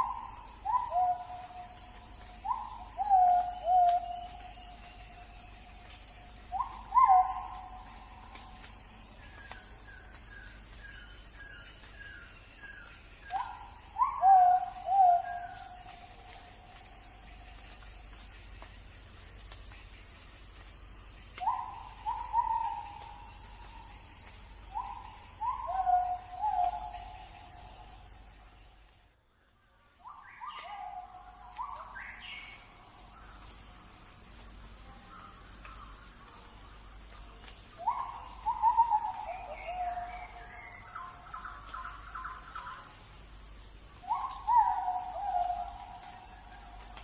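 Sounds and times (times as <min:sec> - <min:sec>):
high-pitched insect drone: 0:00.0 - 0:29.0.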